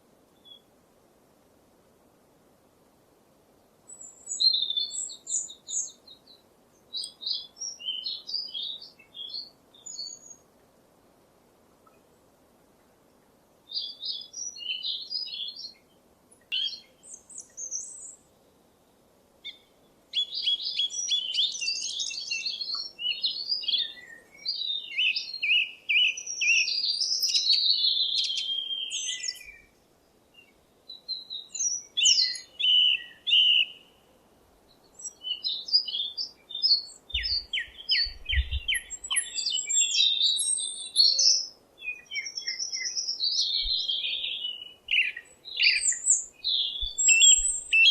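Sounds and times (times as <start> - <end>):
songbirds singing: 0.0 - 0.8, 3.6 - 10.7, 11.8 - 47.9
faint background hiss: 0.0 - 47.9.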